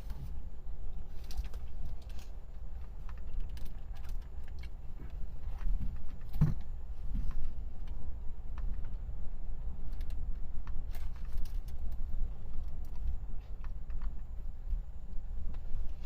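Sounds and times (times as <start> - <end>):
light clicks and taps: 9.8 - 16.0.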